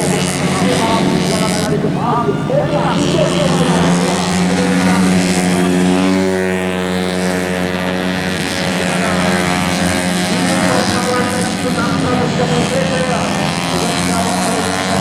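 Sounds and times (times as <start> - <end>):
engines passing by: 0.0 - 15.0
scooter engines at high revs: 0.0 - 15.0.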